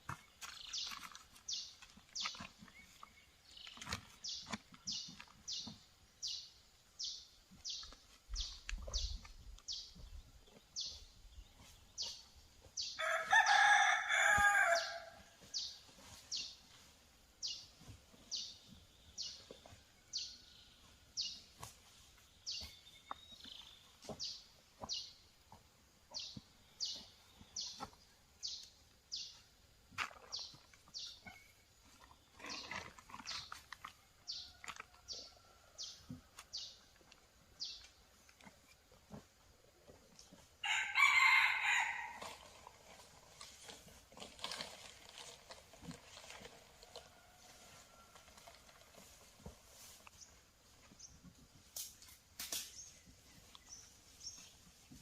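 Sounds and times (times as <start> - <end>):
rooster crowing: 13.0 - 15.2, 40.6 - 42.3.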